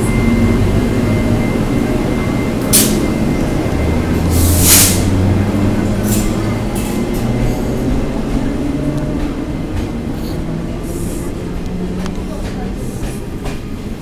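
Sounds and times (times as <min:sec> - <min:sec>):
train engine drone: 0:00.0 - 0:14.0
short high hisses: 0:04.4 - 0:05.1.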